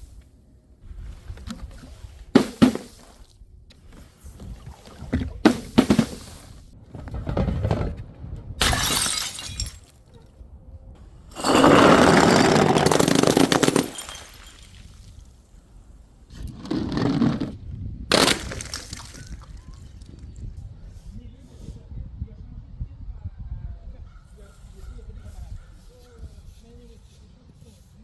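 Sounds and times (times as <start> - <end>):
glass bottles shattering: 8.6 - 10.0, 11.3 - 15.2, 18.1 - 19.6.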